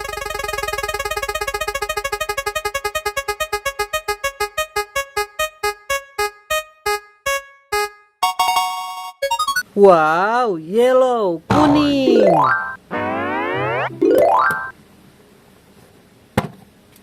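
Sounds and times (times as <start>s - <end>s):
repeated electronic keyboard note: 0.0s - 8.8s, 12.1s - 14.7s.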